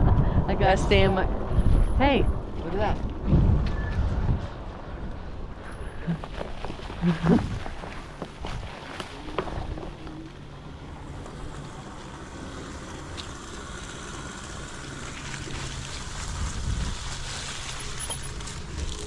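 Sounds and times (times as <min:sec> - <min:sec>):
wind rushing over microphone: 0:00.0 - 0:10.0, 0:16.0 - 0:17.4
rolling rumble: 0:00.0 - 0:19.0.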